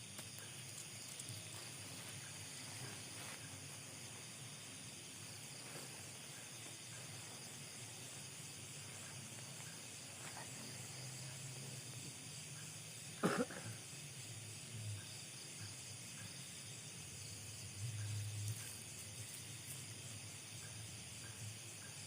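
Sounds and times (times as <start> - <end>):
crickets chorus: 0.0 - 22.0
sharp cough-like sound: 13.2 - 13.8.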